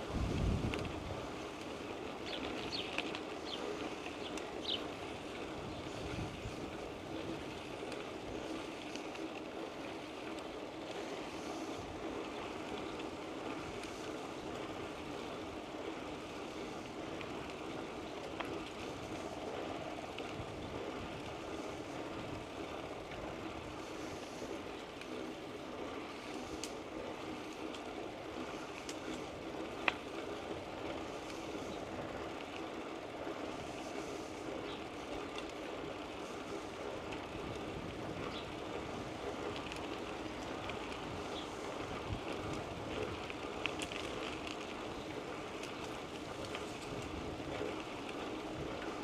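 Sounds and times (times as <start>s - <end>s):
wind on microphone: 0.0s - 1.3s
bicycle tyres rolling on pavement: 0.0s - 49.0s.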